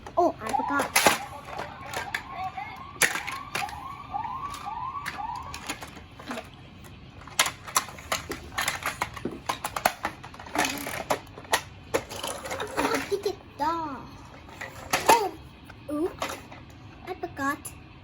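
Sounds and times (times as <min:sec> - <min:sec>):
toy police siren wailing: 0:00.0 - 0:06.5
plastic toy parts clattering: 0:00.0 - 0:13.4, 0:14.2 - 0:16.7.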